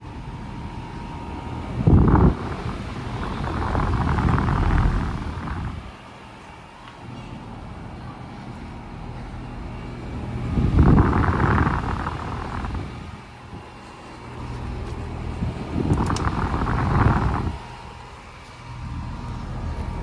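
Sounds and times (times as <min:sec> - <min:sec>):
compressor and fan hum: 0:00.0 - 0:20.0
rushing noise: 0:01.0 - 0:06.1.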